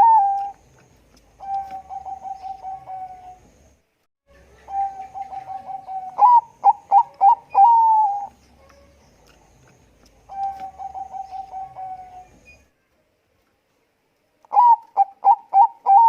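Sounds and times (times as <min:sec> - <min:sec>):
dove cooing: 0:00.0 - 0:00.6, 0:01.3 - 0:03.4, 0:04.4 - 0:12.4, 0:14.5 - 0:16.0.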